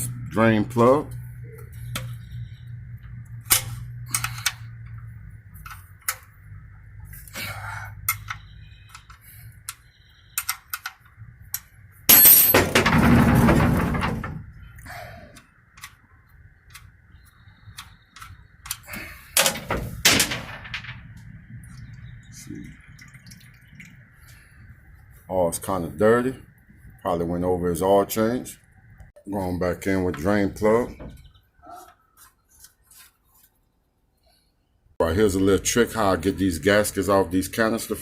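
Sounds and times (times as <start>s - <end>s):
wrench clinking on metal: 11.6s - 12.7s.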